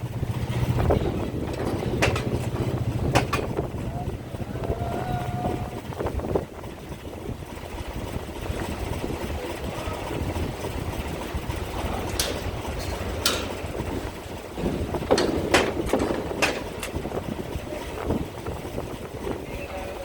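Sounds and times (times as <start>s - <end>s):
ferry engines rumbling: 0.0s - 20.0s
wind on microphone: 0.0s - 20.0s
sharp knocks: 0.9s - 3.7s, 12.2s - 13.8s, 14.6s - 17.2s.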